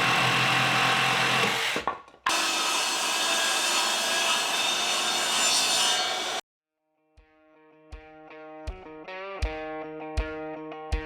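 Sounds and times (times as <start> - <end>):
power saw cutting wood: 0.0 - 6.4.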